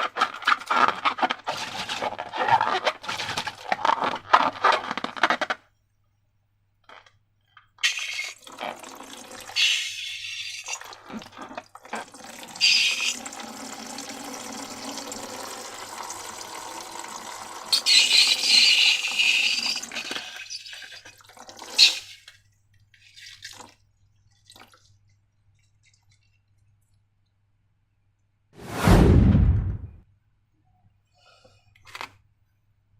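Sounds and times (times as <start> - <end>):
liquid pouring and dripping: 7.8 - 27.4.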